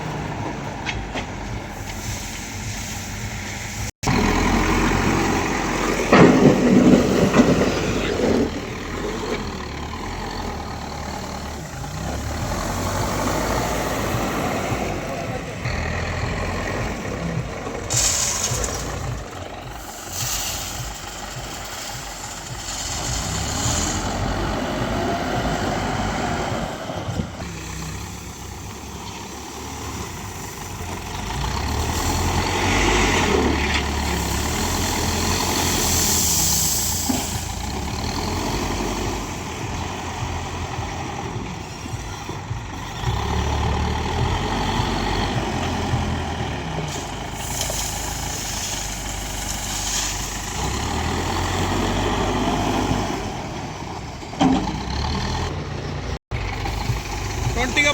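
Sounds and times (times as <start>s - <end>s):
diesel engines running: 0.0s - 57.9s
hiss bursts: 1.7s - 7.4s, 17.8s - 26.6s, 29.5s - 39.4s, 46.8s - 51.7s.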